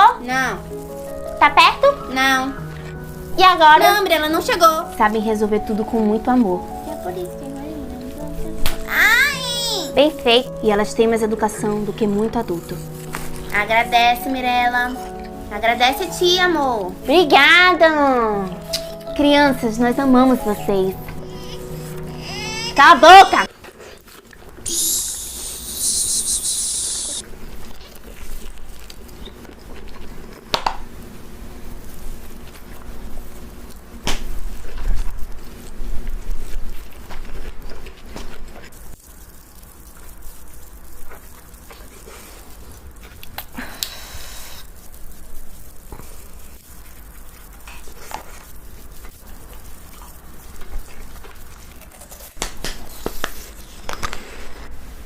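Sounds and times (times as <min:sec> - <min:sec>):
slime crackling and popping: 0:00.2 - 0:10.0, 0:11.4 - 0:23.2, 0:38.2 - 0:54.2
bright hiss: 0:24.6 - 0:27.2, 0:43.4 - 0:46.2.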